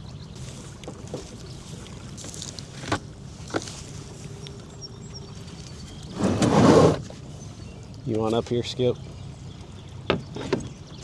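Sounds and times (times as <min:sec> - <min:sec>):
sharp knocks on boat: 0:10.0 - 0:11.0.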